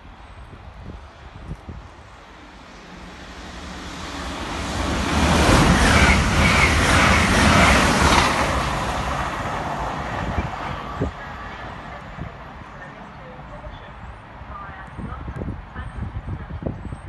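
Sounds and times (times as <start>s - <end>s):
train rushing past: 1.0s - 13.3s.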